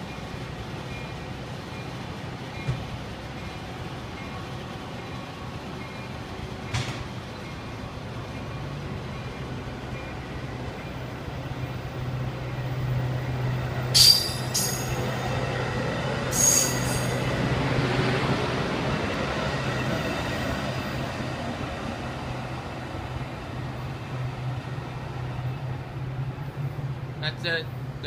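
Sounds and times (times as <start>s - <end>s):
train rolling: 0.0s - 28.0s
high-pitched wheel squeals: 14.0s - 15.0s, 16.3s - 17.2s.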